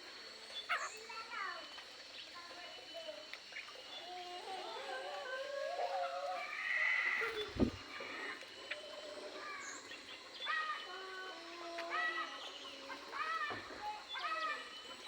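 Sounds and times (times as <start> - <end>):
dull thump: 7.5 - 7.8.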